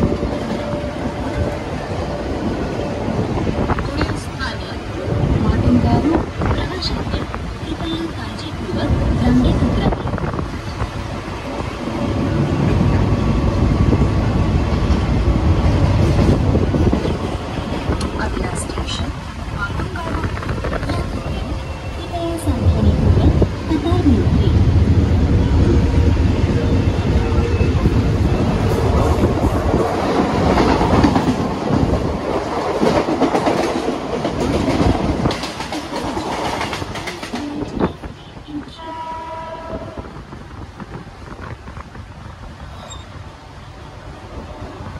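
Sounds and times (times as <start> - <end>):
train wheels rumbling and rattling: 0.0 - 44.9
short train horn: 38.6 - 40.1.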